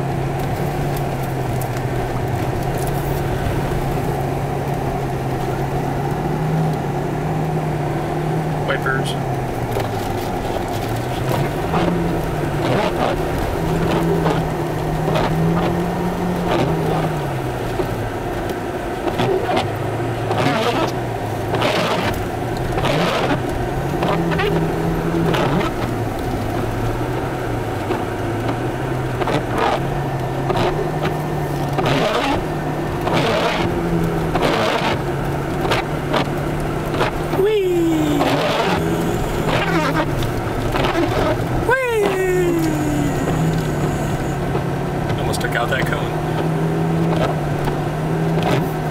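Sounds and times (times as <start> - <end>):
car engine revving: 0.0 - 48.9.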